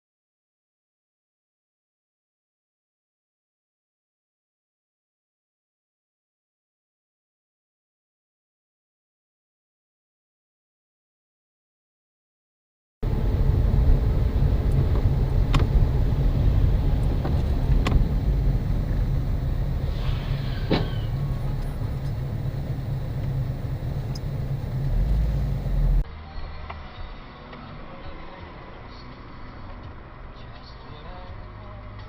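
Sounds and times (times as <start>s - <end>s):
car driving low rumble: 13.0s - 26.1s
faint clicks: 24.0s - 24.4s.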